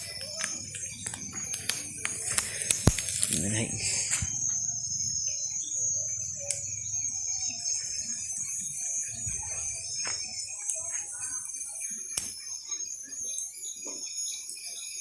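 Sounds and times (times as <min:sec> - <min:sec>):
sharp pops: 0:00.0 - 0:04.8
faint distant sounds: 0:00.0 - 0:13.6
high insect-like drone: 0:00.0 - 0:15.0.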